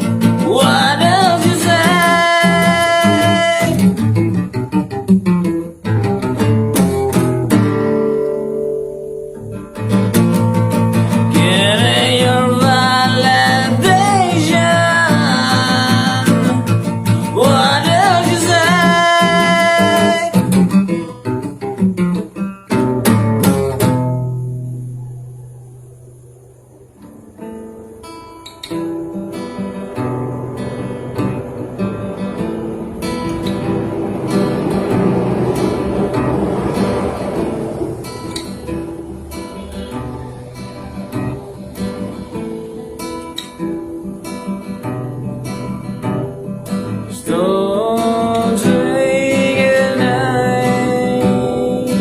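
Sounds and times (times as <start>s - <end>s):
person singing: 0.0s - 4.0s, 11.1s - 20.6s, 47.0s - 52.0s
acoustic guitar: 0.0s - 52.0s.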